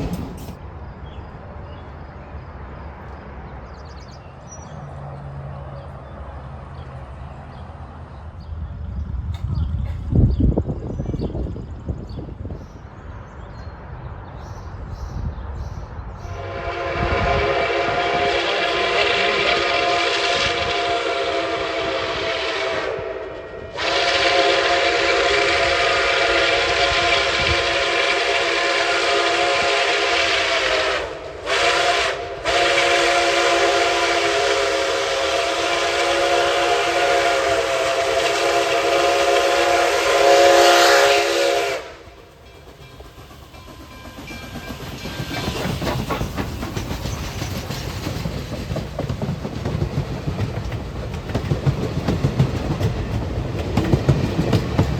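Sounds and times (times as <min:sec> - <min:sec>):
rail clatter: 0:00.0 - 0:01.3, 0:17.0 - 0:20.8, 0:42.1 - 0:54.9
train rumbling past: 0:00.0 - 0:54.9
locomotive chime whistle: 0:16.3 - 0:45.7.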